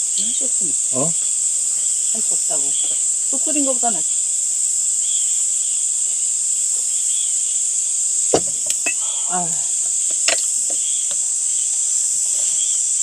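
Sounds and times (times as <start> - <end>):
crickets trilling: 0.0 - 13.0
tableware clinking: 8.4 - 9.2, 10.1 - 10.9.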